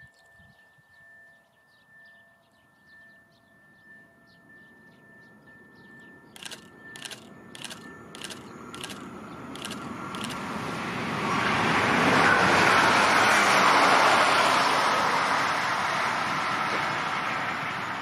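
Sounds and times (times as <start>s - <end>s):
faint birdsong chirps: 0.0s - 10.4s
train rumble: 6.3s - 18.0s
sharp regular train clacks: 6.4s - 10.5s.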